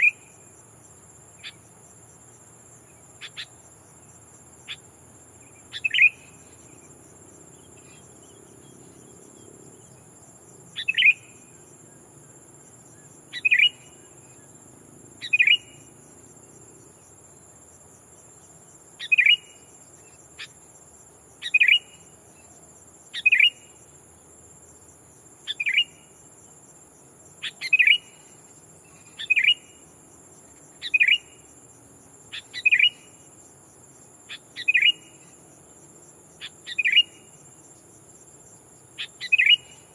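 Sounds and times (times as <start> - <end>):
high insect drone: 0.0 - 39.9
bird calls: 3.2 - 3.6, 5.7 - 6.8, 10.8 - 11.3, 13.3 - 13.9, 15.2 - 15.8, 19.0 - 19.5, 21.4 - 22.6, 23.2 - 23.6, 25.5 - 26.0, 27.4 - 28.2, 28.9 - 29.7, 30.8 - 31.3, 32.3 - 33.1, 34.3 - 35.3, 36.4 - 37.2, 39.0 - 39.9.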